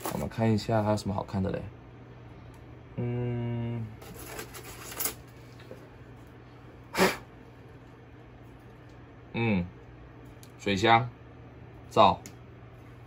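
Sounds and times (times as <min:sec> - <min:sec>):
man humming: 0:02.9 - 0:04.0
parts and packaging rustling: 0:04.0 - 0:05.8.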